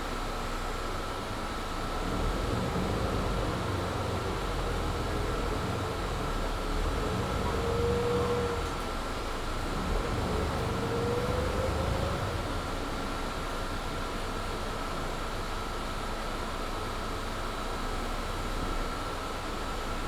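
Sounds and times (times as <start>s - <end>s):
bus engine rumble: 1.1s - 17.1s.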